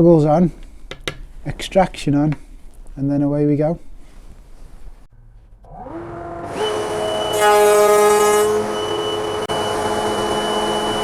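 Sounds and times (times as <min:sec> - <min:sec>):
dust extractor motor whine: 0:05.6 - 0:11.0
router motor whine: 0:05.7 - 0:11.0.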